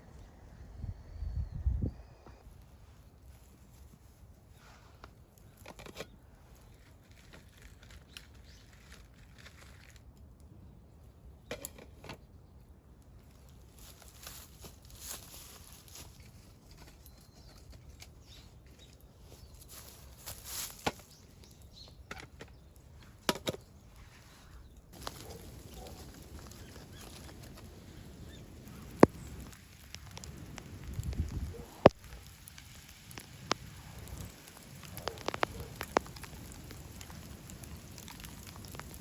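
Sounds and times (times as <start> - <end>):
fire popping: 2.4 - 39.0
wood fire crackling: 12.5 - 39.0.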